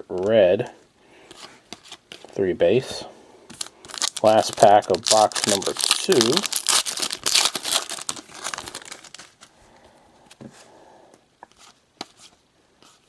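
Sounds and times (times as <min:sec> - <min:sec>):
foil wrapper crinkling and tearing: 0:03.6 - 0:09.5.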